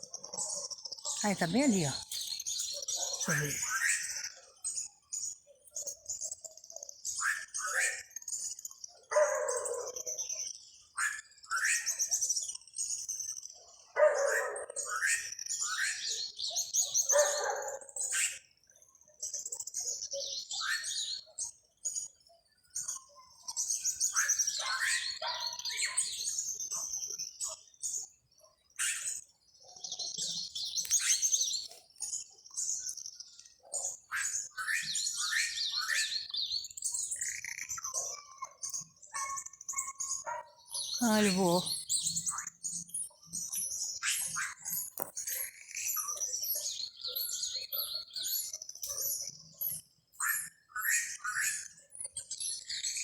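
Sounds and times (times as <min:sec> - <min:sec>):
songbird trilling and chirping: 0:00.4 - 0:04.2, 0:22.8 - 0:48.6.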